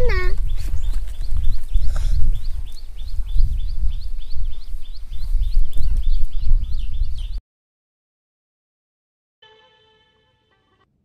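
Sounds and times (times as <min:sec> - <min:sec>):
bird chirping: 0:00.0 - 0:07.4
wind rumbling on microphone: 0:00.0 - 0:07.4.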